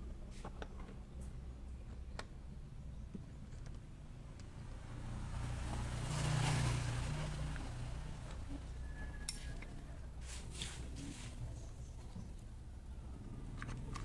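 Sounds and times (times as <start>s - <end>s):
road vehicle passing by: 4.0s - 14.0s.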